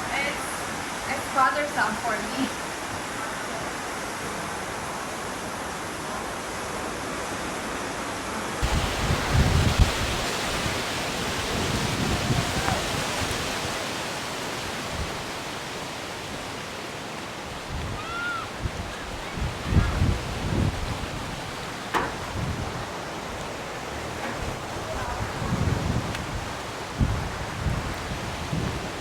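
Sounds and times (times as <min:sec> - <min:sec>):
rush of wind and water: 0:00.0 - 0:29.0
wind gusts buffeting microphone: 0:08.6 - 0:29.0.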